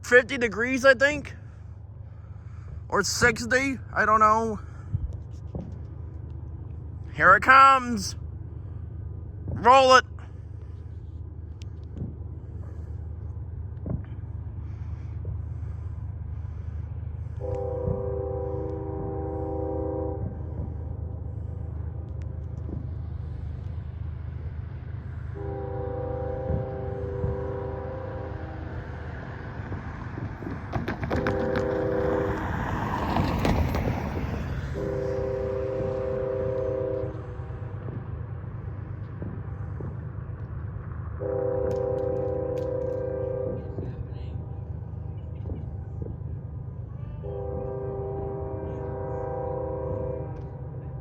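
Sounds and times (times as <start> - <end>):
diesel locomotive rumble: 0.0 - 51.0
locomotive horn chord: 17.3 - 21.0, 25.3 - 28.9, 31.2 - 32.4, 34.5 - 37.7, 41.2 - 43.9, 47.2 - 51.0.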